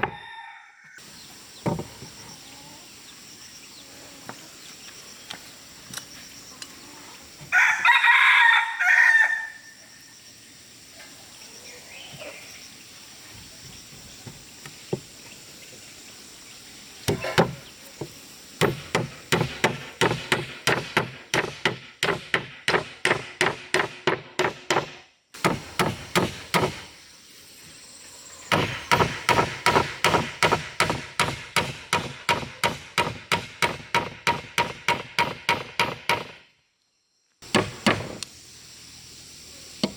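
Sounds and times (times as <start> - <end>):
rooster crowing: 0.0 - 1.1, 7.5 - 9.9
rapid hammering on wood: 17.1 - 26.9, 28.5 - 36.4, 37.4 - 38.2.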